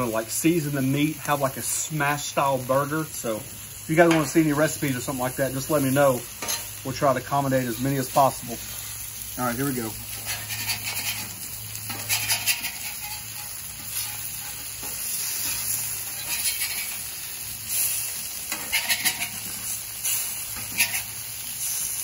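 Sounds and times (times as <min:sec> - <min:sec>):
eggs sizzling on griddle: 0:00.0 - 0:22.0
metal spatula scraping griddle: 0:05.5 - 0:06.7, 0:09.6 - 0:21.9.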